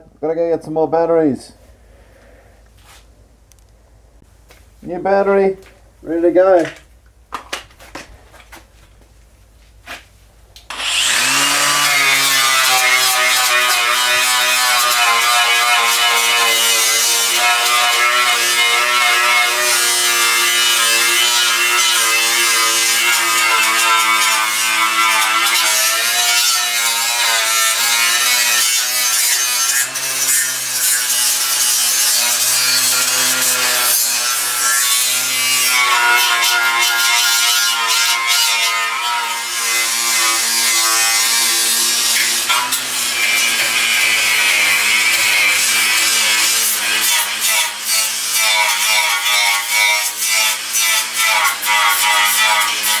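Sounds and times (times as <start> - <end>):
angle grinder grinding metal: 10.7 - 53.0.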